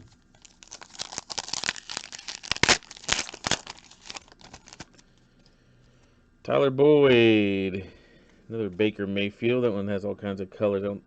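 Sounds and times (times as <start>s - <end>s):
foil wrapper tearing and crinkling: 0.1s - 5.0s.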